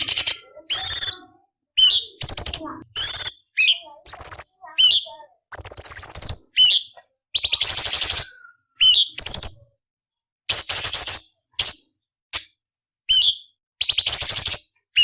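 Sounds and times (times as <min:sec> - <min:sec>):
bird singing: 0:00.0 - 0:09.7.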